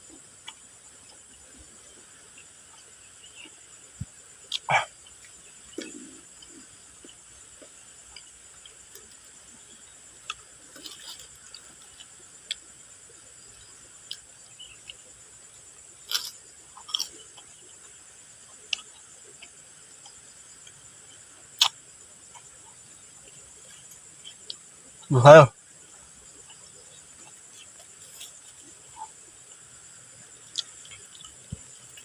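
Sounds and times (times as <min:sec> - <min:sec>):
crunching chips being chewed: 0:10.3 - 0:12.6, 0:16.1 - 0:17.5.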